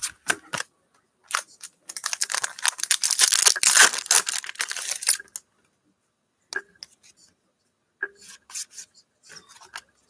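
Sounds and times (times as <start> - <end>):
foil wrapper tearing and crinkling: 1.3 - 5.2.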